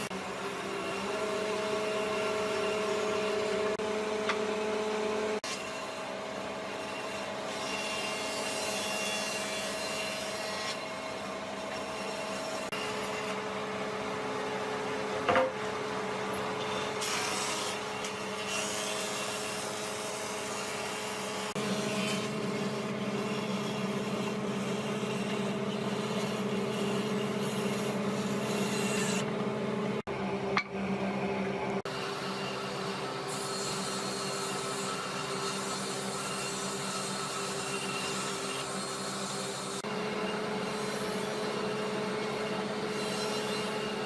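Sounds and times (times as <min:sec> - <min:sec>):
steady machine hum: 0:21.6 - 0:33.2.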